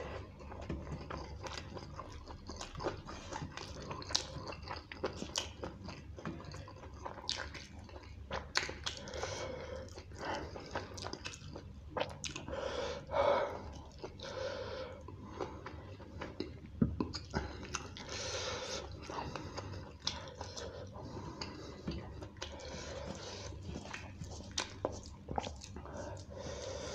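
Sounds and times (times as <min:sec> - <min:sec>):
wet chewing: 0:00.0 - 0:26.9
lip smacks: 0:21.4 - 0:26.3.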